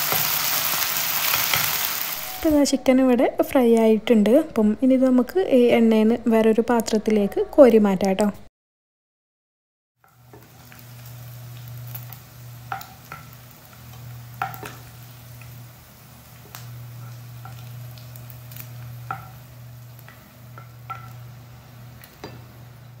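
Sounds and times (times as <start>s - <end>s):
chicken sizzling in a pan: 0.0s - 2.7s, 10.0s - 23.0s
steady low hum: 2.2s - 8.5s.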